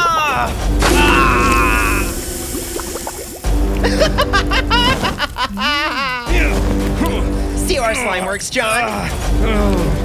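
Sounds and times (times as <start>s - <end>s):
cartoonish voice laughing: 3.8s - 6.4s.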